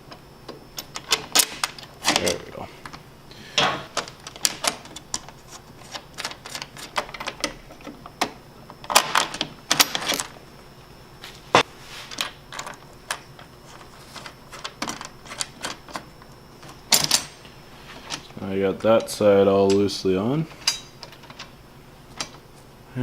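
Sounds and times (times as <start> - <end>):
parts knocking into place: 3.6 - 4.9
bolts and nuts clinking: 3.6 - 10.3, 12.2 - 17.5, 18.1 - 22.4.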